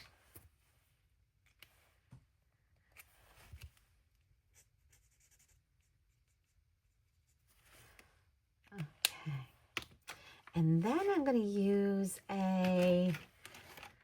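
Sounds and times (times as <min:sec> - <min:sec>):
marker scratching on cardstock: 0:04.5 - 0:06.6.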